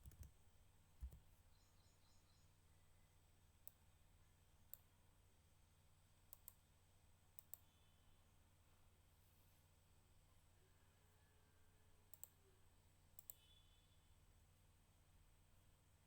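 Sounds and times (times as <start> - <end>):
computer mouse clicks: 0.0 - 0.3, 1.0 - 1.2, 6.3 - 6.6, 7.4 - 7.7, 12.1 - 12.4, 13.2 - 13.5.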